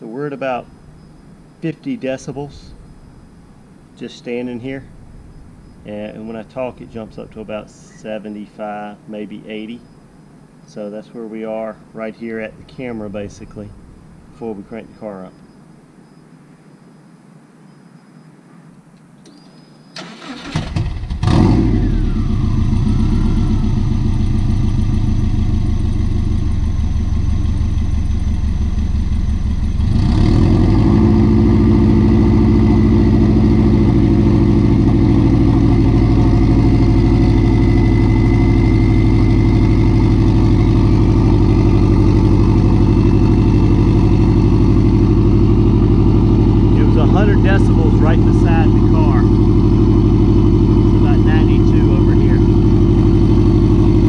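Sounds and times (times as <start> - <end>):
car engine cranking and starting: 2.2 - 4.0, 4.7 - 7.6, 20.0 - 54.0
loud turbocharged engine running: 20.8 - 54.0.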